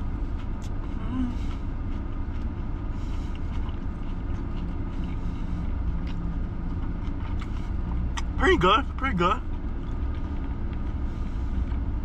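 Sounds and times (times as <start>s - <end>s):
car engine idling: 0.0s - 12.0s
chewing clicks: 3.3s - 4.8s, 5.9s - 8.4s.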